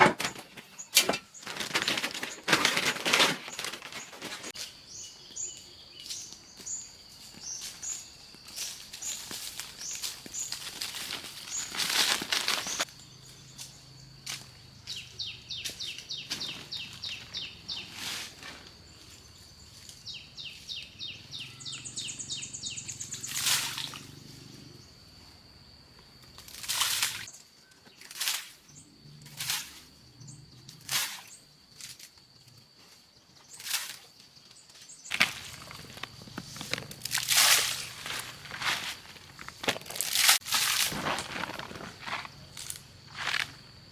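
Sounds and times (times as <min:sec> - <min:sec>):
sharp rustling or crunching: 0:00.0 - 0:04.7, 0:07.6 - 0:12.9, 0:35.0 - 0:43.7.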